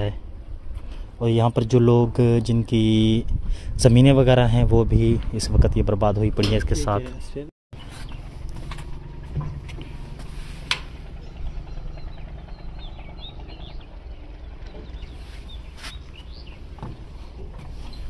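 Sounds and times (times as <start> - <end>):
small birds chirping: 6.8 - 18.0
low rumble: 7.8 - 18.0.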